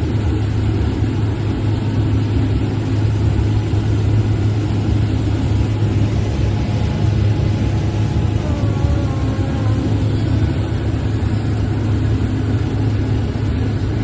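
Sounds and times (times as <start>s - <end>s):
combine harvester engine hum: 0.0s - 14.0s
mechanical rush: 3.3s - 14.0s.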